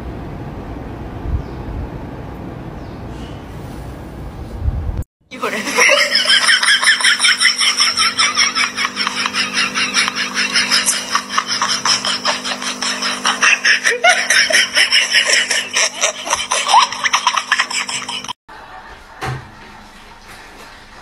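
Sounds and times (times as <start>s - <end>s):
person laughing hard: 5.4s - 18.4s.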